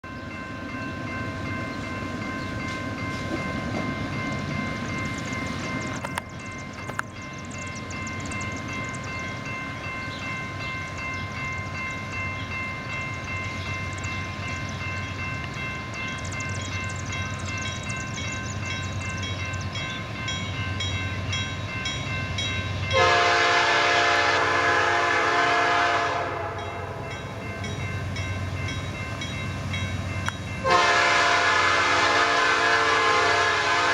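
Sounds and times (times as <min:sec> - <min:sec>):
locomotive engine rumble: 0:00.0 - 0:33.9
locomotive air horn blast: 0:22.9 - 0:27.0, 0:30.6 - 0:33.9.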